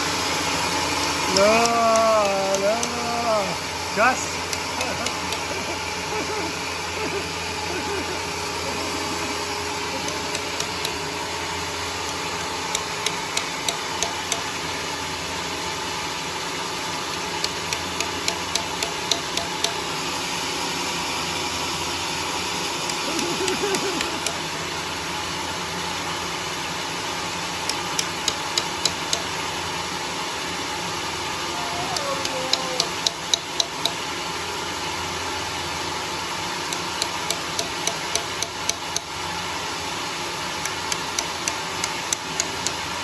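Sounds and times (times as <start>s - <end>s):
sawmill engine running: 0.0s - 30.5s.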